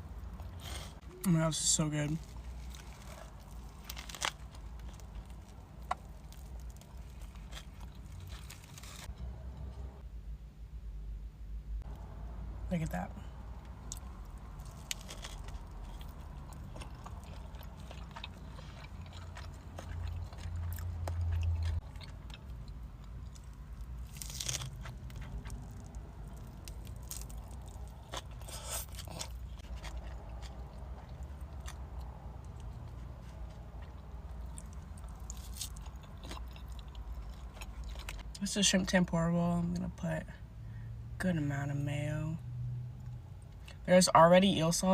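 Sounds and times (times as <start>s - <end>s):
person biting and chewing food: 2.2s - 9.3s, 13.6s - 38.3s.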